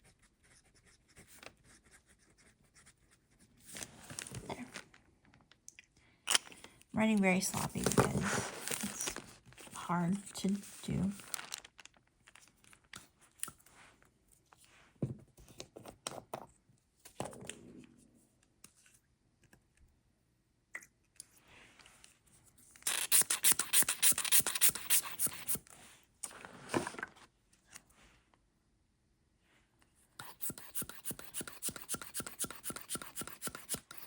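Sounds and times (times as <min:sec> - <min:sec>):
fountain pen scratching on paper: 0:23.1 - 0:25.6, 0:30.2 - 0:34.0.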